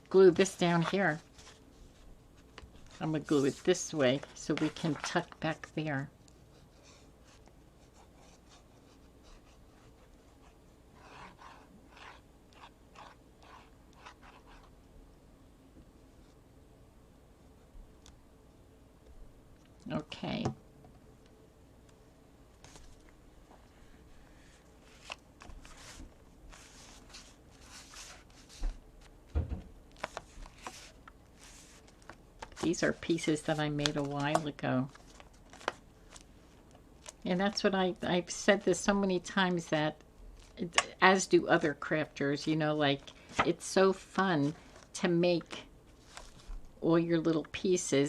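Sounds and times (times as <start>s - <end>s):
paper rubbing and rustling: 0.4s - 5.7s, 24.4s - 29.1s, 29.9s - 36.2s, 45.9s - 46.6s.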